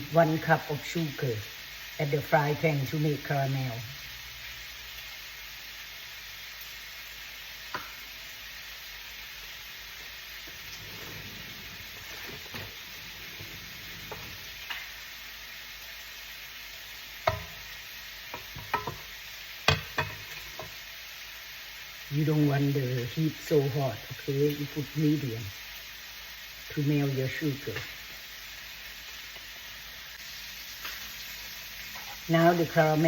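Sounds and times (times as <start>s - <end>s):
sugar hissing in a frying pan: 0.0s - 33.0s
utensil scraping a pan: 10.4s - 14.8s.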